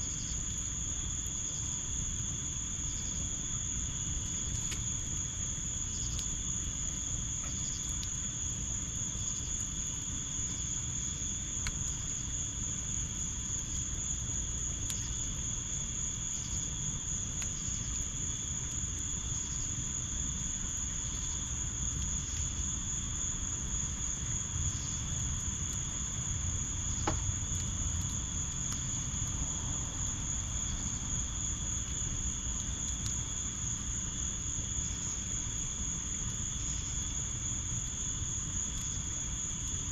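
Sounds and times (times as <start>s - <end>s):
insects trilling: 0.0s - 39.9s
wood fire popping and crackling: 0.0s - 39.9s.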